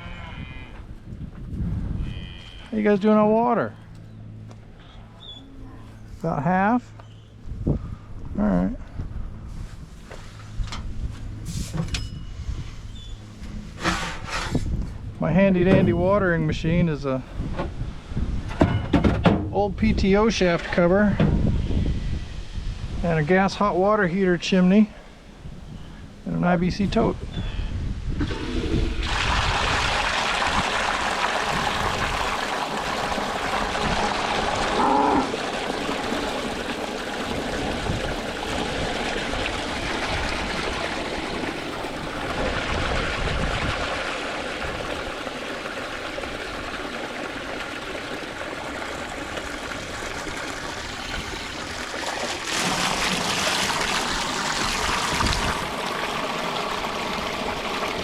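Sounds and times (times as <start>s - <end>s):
water pouring into a trough: 28.2s - 58.0s.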